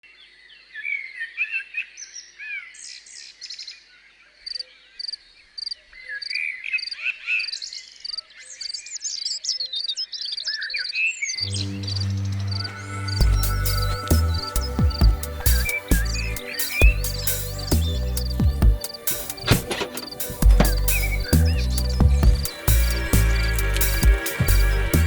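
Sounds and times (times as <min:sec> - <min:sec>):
songbirds singing and chirping: 0:00.2 - 0:25.0
music with low steady tones: 0:11.4 - 0:25.0.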